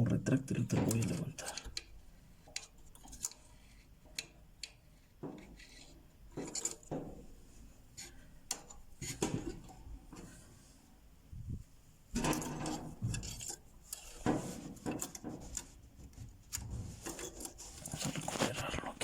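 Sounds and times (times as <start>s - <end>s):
clicks and taps of handled parts: 4.1s - 7.1s.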